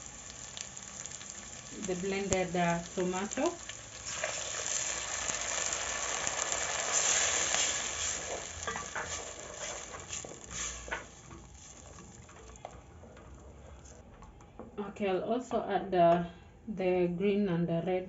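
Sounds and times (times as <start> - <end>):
tomato sizzling in hot oil: 0.0 - 14.0.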